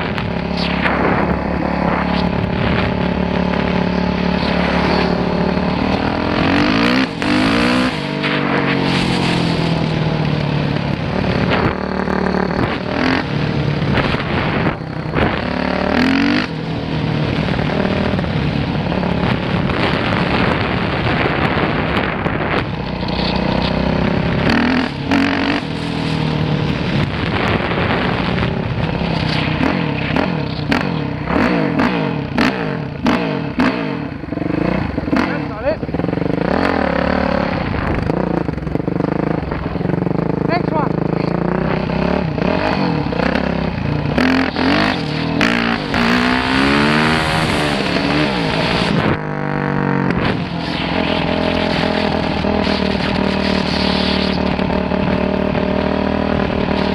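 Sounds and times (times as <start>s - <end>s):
dirt bike engine revving: 0.0s - 56.9s.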